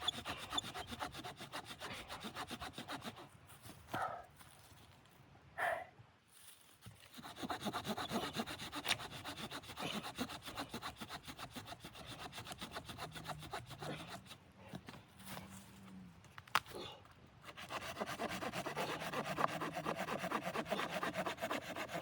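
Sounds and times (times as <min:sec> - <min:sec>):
hand saw cutting wood: 0:00.0 - 0:03.3, 0:07.1 - 0:14.4, 0:17.4 - 0:22.0.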